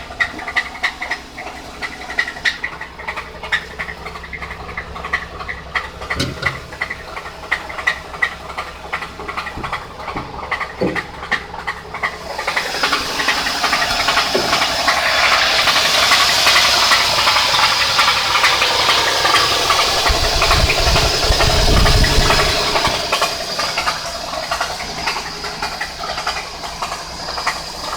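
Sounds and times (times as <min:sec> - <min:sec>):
car engine knocking: 0:00.0 - 0:27.9
loud hiss: 0:12.3 - 0:25.6.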